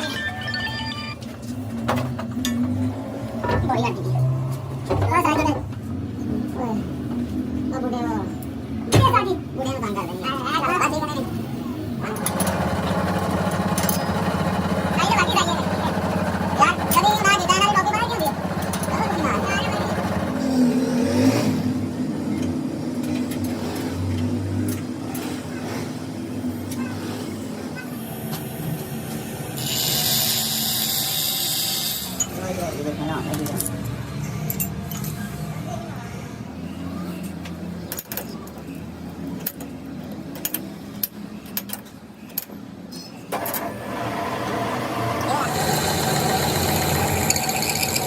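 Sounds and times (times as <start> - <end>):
machine hum: 12.0 - 21.0, 43.4 - 48.0.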